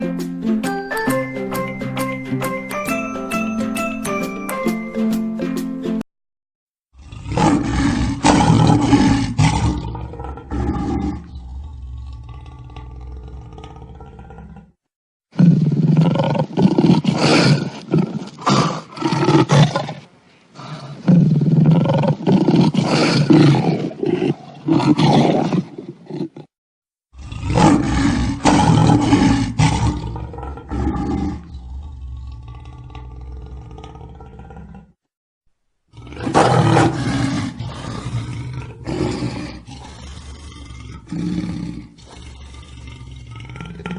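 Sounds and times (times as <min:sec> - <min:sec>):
lion roaring: 0:06.9 - 0:14.8, 0:20.6 - 0:26.5, 0:27.2 - 0:35.0, 0:35.9 - 0:43.9.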